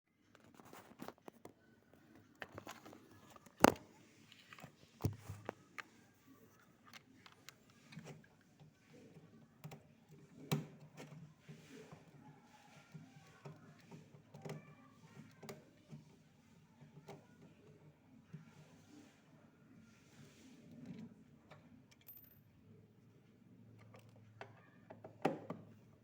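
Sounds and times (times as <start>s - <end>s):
objects being handled: 0.2s - 16.2s.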